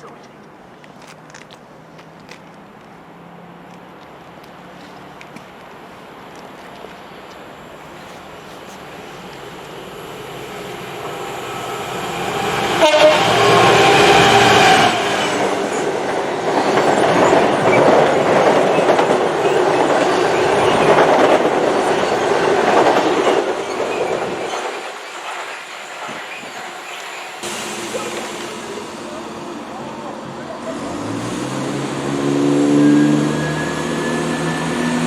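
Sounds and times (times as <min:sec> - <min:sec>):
train passing with rushing: 0:04.2 - 0:35.0
train horn blast: 0:11.6 - 0:15.1.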